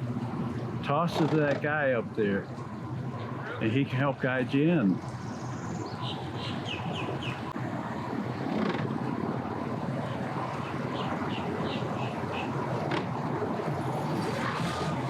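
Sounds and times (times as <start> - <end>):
boat motor running: 0.0 - 15.0
bird chirping: 5.0 - 7.5, 10.5 - 12.6.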